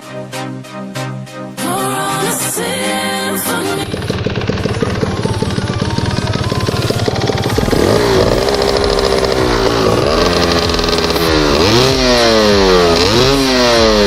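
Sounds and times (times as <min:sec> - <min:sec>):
motorcycle engine revving: 0:03.7 - 0:14.0.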